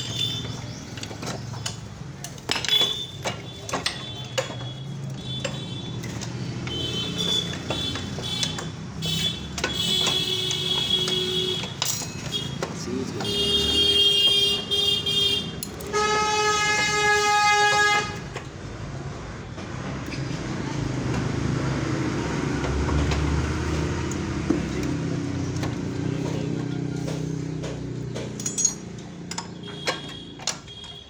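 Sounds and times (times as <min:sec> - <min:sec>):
vehicle horn blasts: 0:06.7 - 0:12.6, 0:13.2 - 0:18.3, 0:29.6 - 0:31.0.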